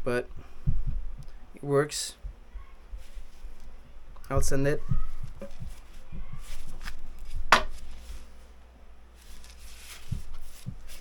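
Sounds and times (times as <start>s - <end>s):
dull thumps: 4.1s - 8.0s, 9.9s - 11.0s
axe handle knocking: 7.5s - 7.8s.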